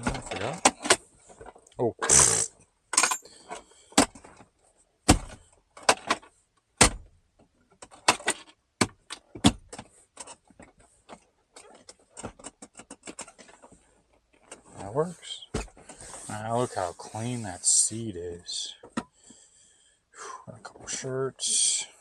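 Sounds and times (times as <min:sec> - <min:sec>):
rustling clatter: 0:07.4 - 0:15.0.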